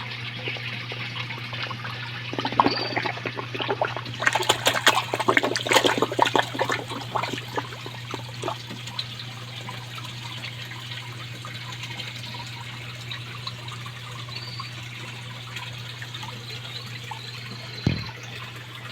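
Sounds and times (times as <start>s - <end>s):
pond water splashing: 0.0s - 10.6s
constant low hum: 0.0s - 18.9s
water trickling: 0.0s - 18.9s.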